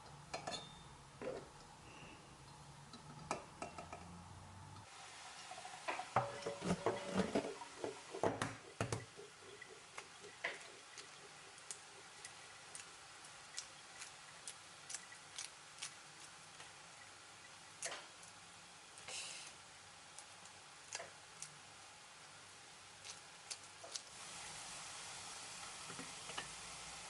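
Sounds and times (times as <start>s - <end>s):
kitchen knocks and clinks: 0.3s - 1.5s.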